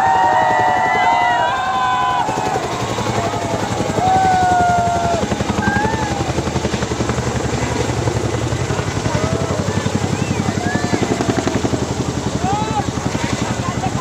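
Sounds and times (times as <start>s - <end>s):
people calling out: 0.0s - 6.4s
helicopter rotor beating: 0.0s - 14.0s.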